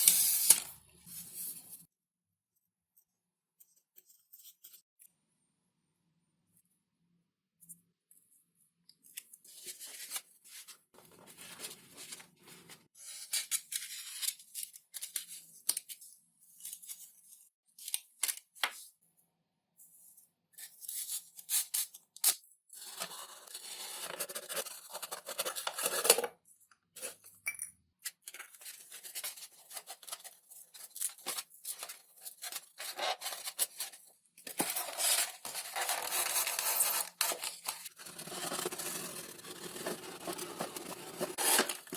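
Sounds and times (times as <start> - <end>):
cutting and scraping foam sheet: 34.6 - 41.9.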